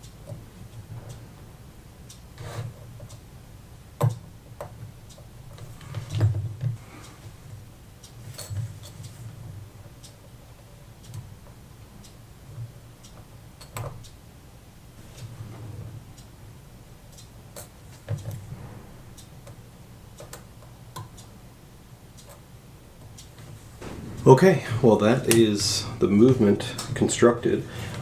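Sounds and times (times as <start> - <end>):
faint low hum: 23.4 - 28.0.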